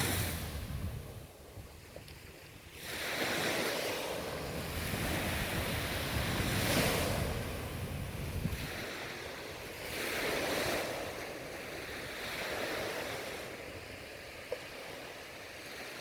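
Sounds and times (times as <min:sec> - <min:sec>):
ocean waves surging on shore: 0:00.0 - 0:16.0
wind rumbling on microphone: 0:00.0 - 0:16.0.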